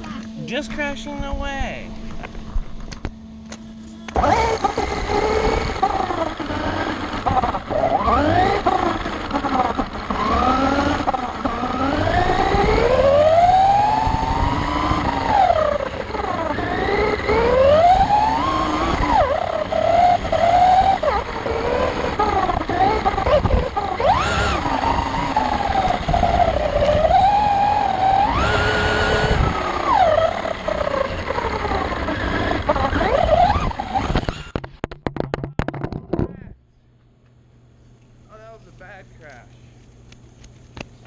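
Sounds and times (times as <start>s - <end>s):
wind: 0.0s - 41.0s
electric rc car motor whining: 2.1s - 34.6s.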